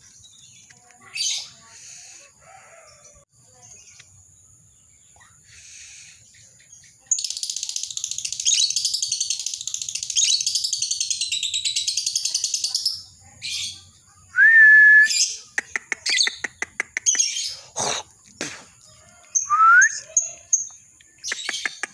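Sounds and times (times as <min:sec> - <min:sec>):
lovebird chirping: 0:03.6 - 0:13.8, 0:15.1 - 0:21.9.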